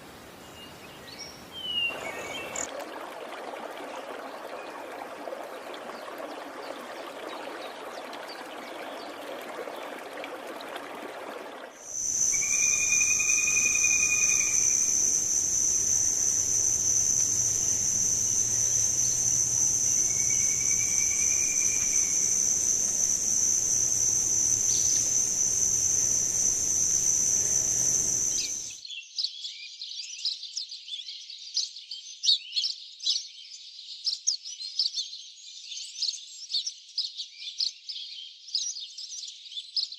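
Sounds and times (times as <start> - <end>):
running water: 0.0 - 28.8
bird chirping: 0.4 - 2.7, 11.8 - 28.7
high-pitched insect trill: 1.9 - 2.7, 11.8 - 28.8
short whistles: 11.8 - 28.7.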